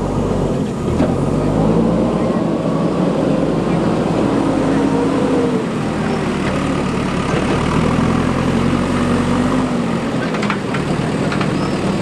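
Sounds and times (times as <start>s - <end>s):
diesel engine under load: 0.0s - 12.0s
faint clicks: 5.7s - 12.0s.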